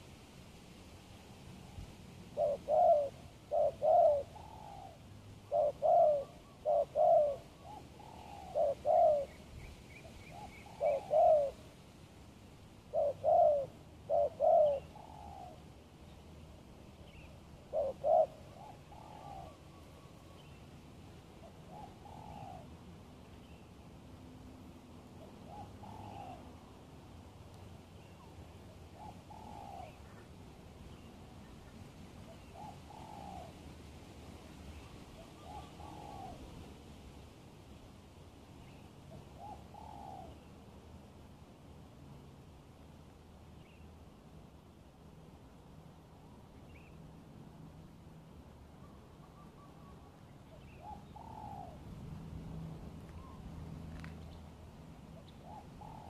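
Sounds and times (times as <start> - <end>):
dove cooing: 1.7 - 9.4, 10.0 - 11.7, 12.8 - 15.7, 17.0 - 20.5, 21.4 - 22.7, 25.2 - 26.7, 28.2 - 30.3, 32.3 - 33.6, 35.1 - 36.7, 39.1 - 40.5, 50.5 - 51.8, 55.2 - 56.0
small bird chirping faintly: 12.9 - 23.9, 45.1 - 56.0.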